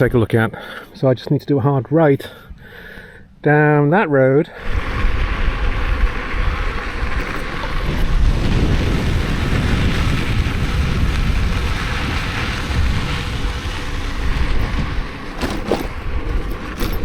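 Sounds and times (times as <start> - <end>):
bike tyres rolling on dirt: 4.6 - 17.0
wind buffeting microphone: 4.6 - 17.0.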